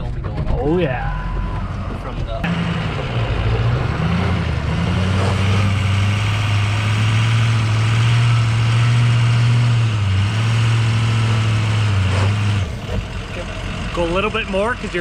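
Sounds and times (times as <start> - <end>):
diesel engine idling: 1.1 - 15.0.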